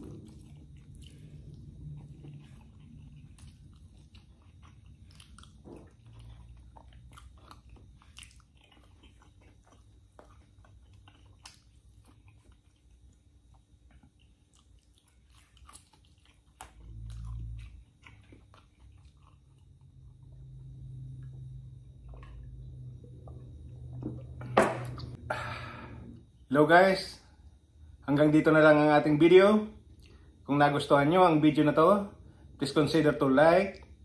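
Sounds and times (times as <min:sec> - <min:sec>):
chewing and biting food: 0:00.0 - 0:24.4.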